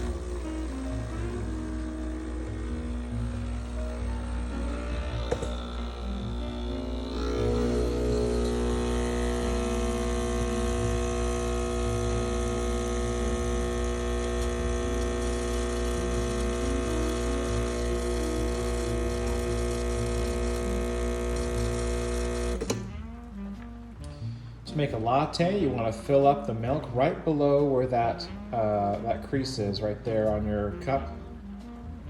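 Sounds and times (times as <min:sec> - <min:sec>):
espresso machine pump humming: 0:00.0 - 0:22.9.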